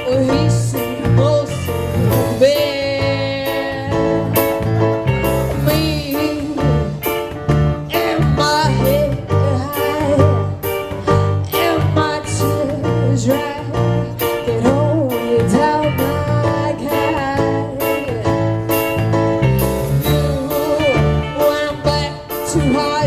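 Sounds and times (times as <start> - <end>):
guitar: 0.0 - 23.0
live band music: 0.0 - 23.0
wavering melodic lead line: 0.0 - 23.0.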